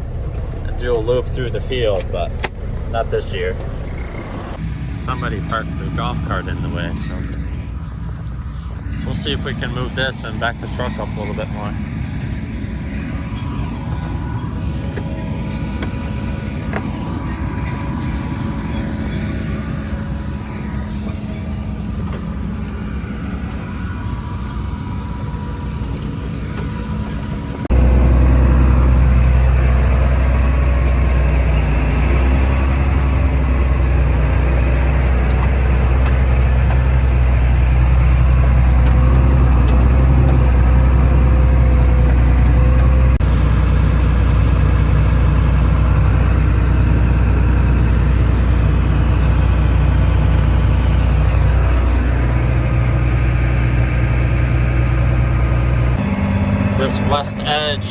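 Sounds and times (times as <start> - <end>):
heavy farm vehicle engine droning: 0.0 - 57.9.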